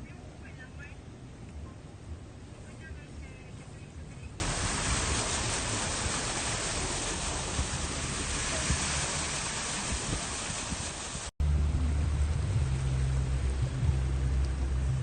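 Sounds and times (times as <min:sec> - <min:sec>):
rushing water: 0:04.4 - 0:15.0.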